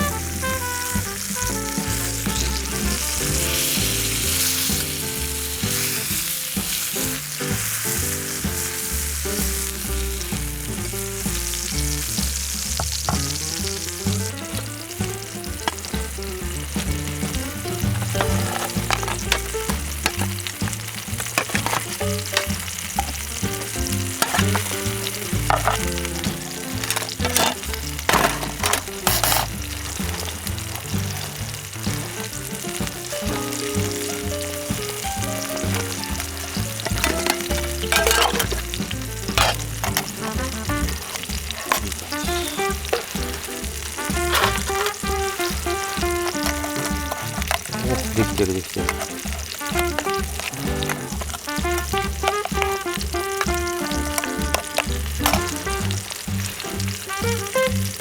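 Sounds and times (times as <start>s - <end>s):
food sizzling in a pan: 0.0s - 58.0s
utensil clicking and scraping: 35.7s - 55.8s.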